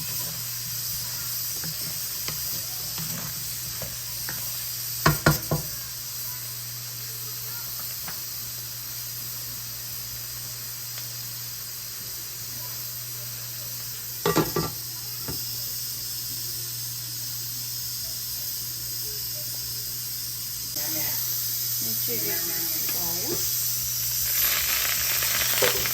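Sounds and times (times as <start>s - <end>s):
potatoes sizzling in oil: 0.0s - 25.9s.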